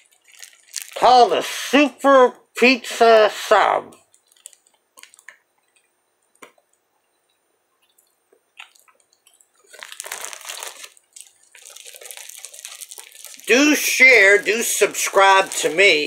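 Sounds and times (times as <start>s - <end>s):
person chewing: 0.0s - 1.0s, 4.0s - 6.6s, 7.8s - 16.0s
plastic bag crinkling: 0.0s - 1.4s, 4.0s - 5.8s, 8.6s - 16.0s.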